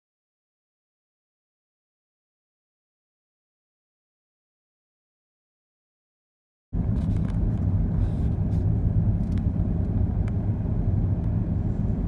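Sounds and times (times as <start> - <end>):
steady low rumble: 6.8 - 12.0.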